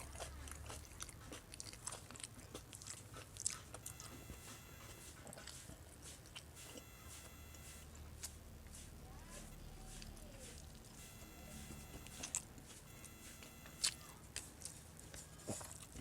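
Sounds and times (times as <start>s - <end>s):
person chewing food: 0.0s - 8.9s, 9.9s - 16.0s
faint high steady tone: 3.8s - 5.1s, 6.6s - 8.0s, 9.2s - 14.3s.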